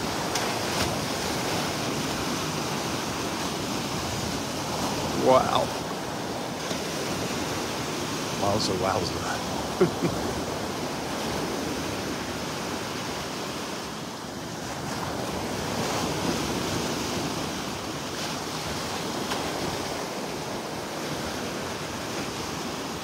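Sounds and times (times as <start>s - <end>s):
surf washing onto beach: 0.0s - 23.0s.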